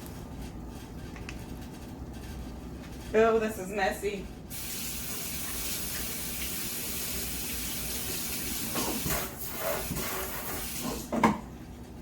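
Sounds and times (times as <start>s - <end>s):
tap running into sink: 7.9s - 11.4s.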